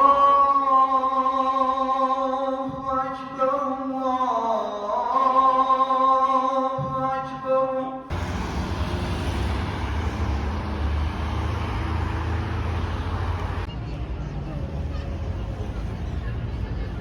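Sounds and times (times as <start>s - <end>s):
person singing chant-like melody: 0.0s - 13.7s
moving vehicle rumbling: 8.1s - 17.0s.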